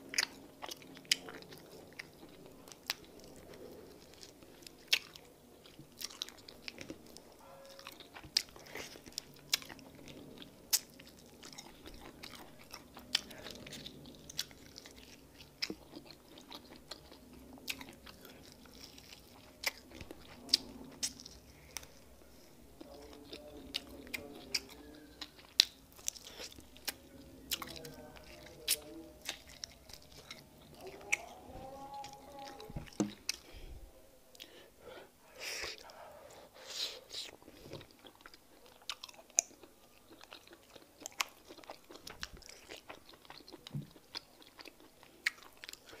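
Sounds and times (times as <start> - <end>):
person chewing meat: 0.0 - 34.7, 35.4 - 46.0
low voiced hums: 27.0 - 34.2.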